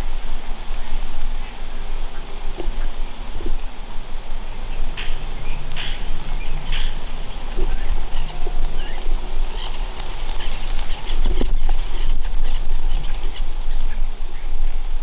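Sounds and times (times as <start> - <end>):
birds chirping: 4.4 - 15.0.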